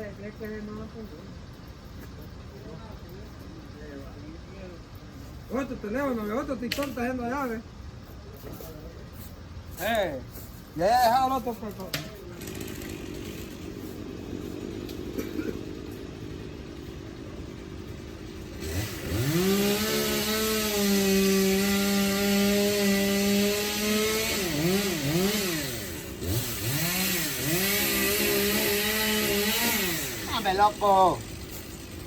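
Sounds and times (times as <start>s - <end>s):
chainsaw idling and revving: 11.2s - 32.0s.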